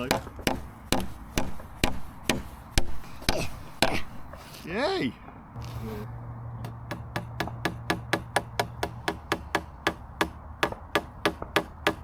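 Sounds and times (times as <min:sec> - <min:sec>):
hammer tapping staple into wood: 0:00.0 - 0:04.1.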